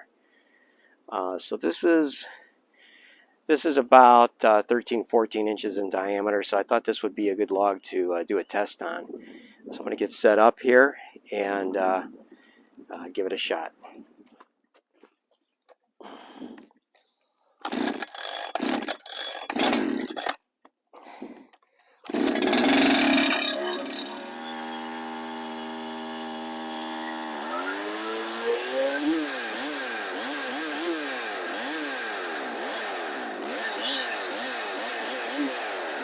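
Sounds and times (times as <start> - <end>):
chainsaw starter rasps: 17.5 - 20.5, 21.2 - 36.0
chainsaw engine running: 17.6 - 20.4, 22.0 - 36.0.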